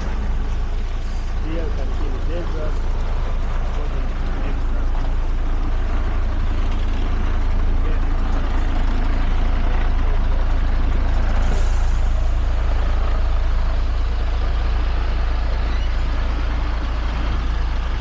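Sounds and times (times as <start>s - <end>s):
truck engine rumbling: 0.0s - 18.0s
air hiss: 11.4s - 14.1s.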